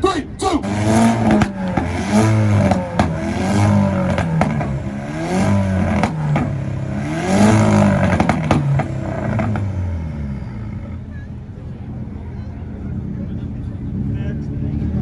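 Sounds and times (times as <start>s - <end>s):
car engine revving: 0.5s - 14.3s
exhaust pops: 0.6s - 12.0s.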